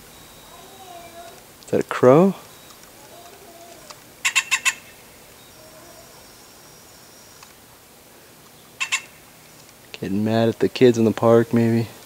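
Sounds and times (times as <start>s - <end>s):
grackle harsh clacking calls: 2.4s - 7.6s, 8.4s - 9.8s.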